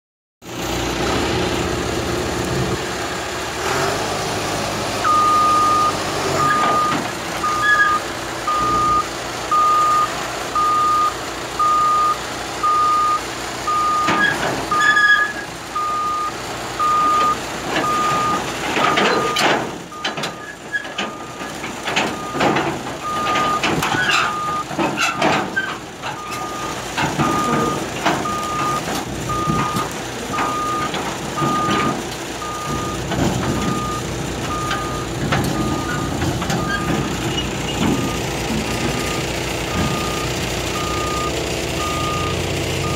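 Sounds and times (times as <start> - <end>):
diesel engine running: 0.4 - 42.9
backup alarm beeping: 5.1 - 20.5, 22.1 - 22.4, 23.0 - 23.7, 24.3 - 24.7, 26.2 - 33.0, 33.6 - 37.0, 37.7 - 42.9
metal clanks and knocks: 17.7 - 40.3.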